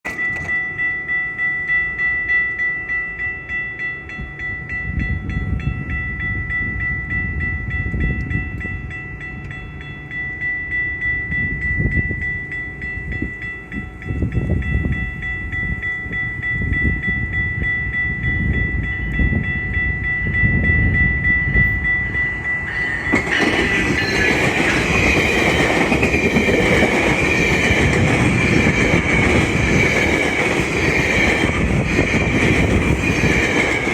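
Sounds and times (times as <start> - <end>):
steady high tone: 0.1 - 33.9
train wheels clacking over rail joints: 22.7 - 33.9.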